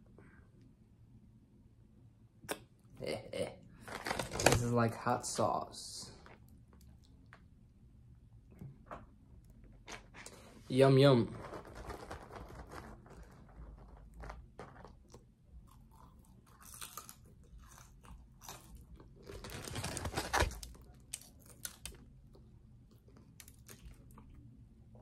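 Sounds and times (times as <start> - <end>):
person chewing crunchy food: 13.2 - 24.4.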